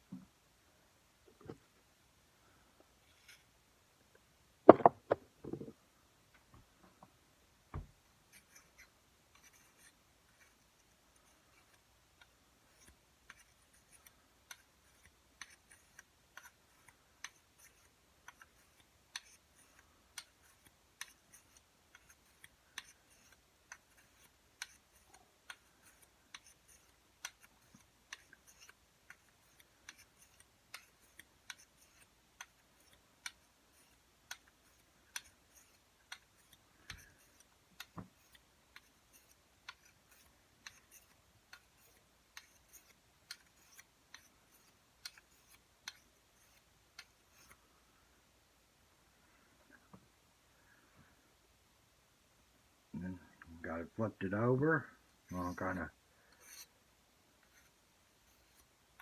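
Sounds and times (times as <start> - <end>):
blade scraping on honing stone: 34.6 - 47.6, 56.3 - 56.7.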